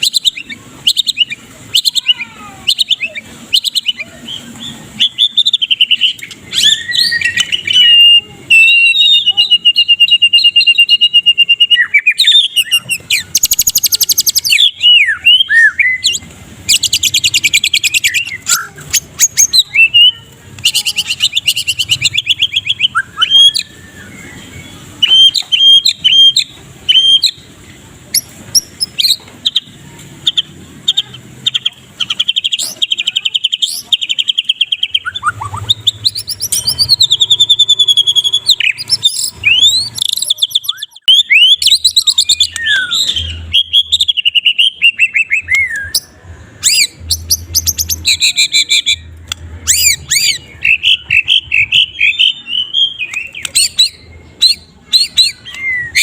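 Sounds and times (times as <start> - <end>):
bird singing varied song: 0.0 - 56.0.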